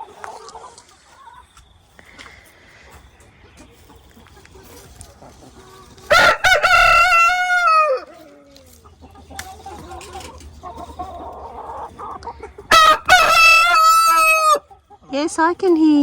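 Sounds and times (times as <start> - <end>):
hen sounds: 0.0 - 16.0
rooster crowing: 6.1 - 8.2, 12.7 - 14.7.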